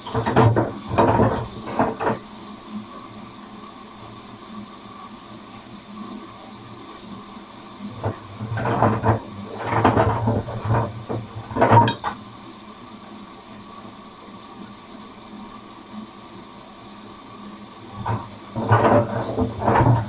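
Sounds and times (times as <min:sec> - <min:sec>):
rollers clattering in drum: 0:00.0 - 0:02.3, 0:07.9 - 0:12.2, 0:17.9 - 0:20.0
washing machine humming: 0:00.0 - 0:20.0.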